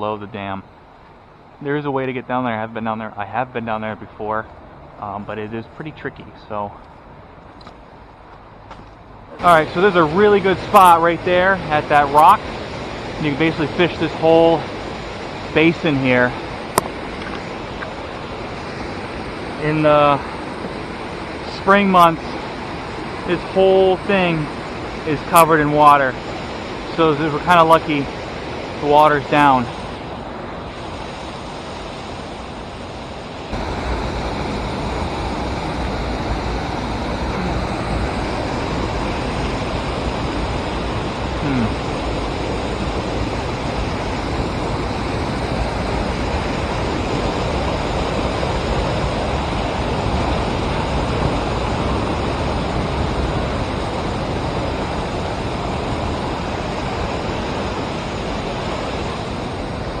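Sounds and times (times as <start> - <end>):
river water rushing over a dam: 9.4 - 60.0.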